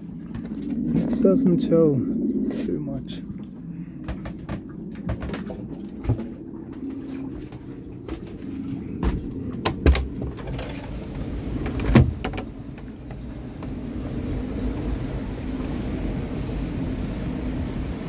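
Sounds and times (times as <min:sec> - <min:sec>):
steady low rumble: 0:00.0 - 0:18.0
knocks and clicks of movement: 0:04.0 - 0:06.9, 0:09.0 - 0:13.8.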